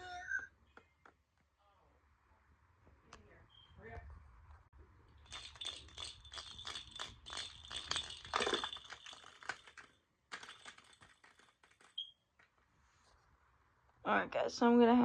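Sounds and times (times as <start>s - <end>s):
rattle shaken: 5.1s - 12.1s.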